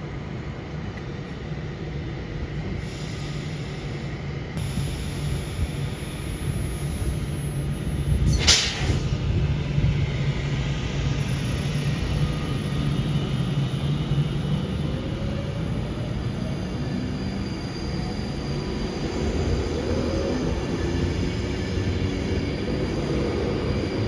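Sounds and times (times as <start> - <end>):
train rumbling: 0.0 - 24.0
short sharp hiss: 8.3 - 9.1.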